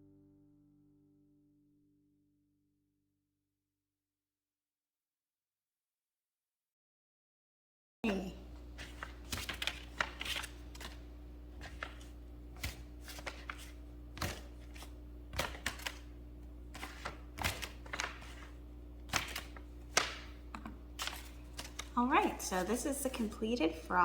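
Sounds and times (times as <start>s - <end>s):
paper being folded and creased: 8.6s - 16.1s, 16.7s - 20.4s, 21.0s - 23.4s.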